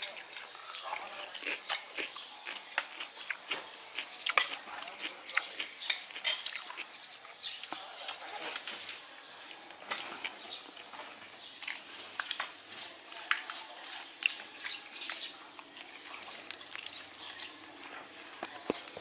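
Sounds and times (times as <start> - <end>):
chewing and lip smacks: 0.0 - 8.7, 13.1 - 19.0.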